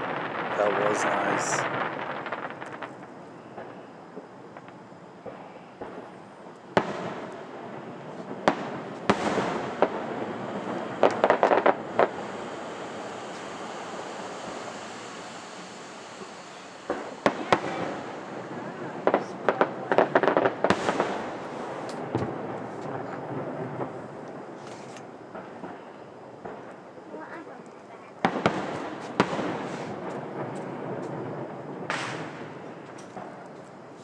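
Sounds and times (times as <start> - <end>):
fireworks bangs with echo: 0.0 - 27.4, 28.2 - 33.8
fireworks crackling: 0.0 - 34.0.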